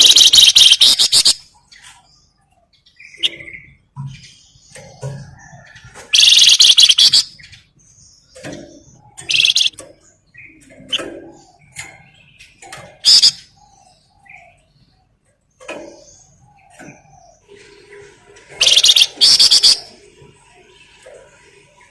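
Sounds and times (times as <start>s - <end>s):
bird buzzing rattles: 0.0s - 1.2s, 9.2s - 9.8s, 18.6s - 19.8s
soft bird chirps and calls: 0.0s - 21.9s.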